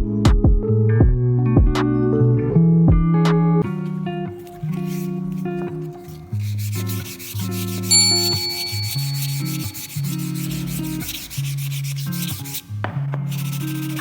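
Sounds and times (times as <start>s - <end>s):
background music: 0.0s - 14.0s
wood being sanded: 4.4s - 14.0s
short high ding: 7.8s - 10.4s.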